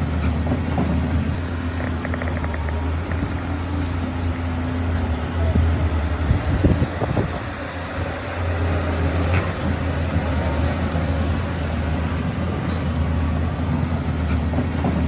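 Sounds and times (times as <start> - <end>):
heavy diesel engine running: 0.0 - 15.0
faint clicks: 1.7 - 3.3.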